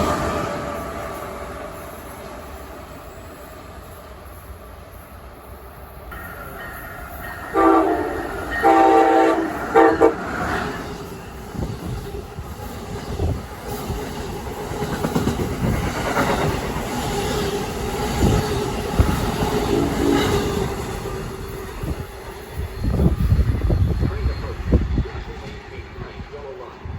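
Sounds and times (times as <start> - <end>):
train rumble and wheel clatter: 0.0 - 26.9
train horn blasts: 7.4 - 10.7.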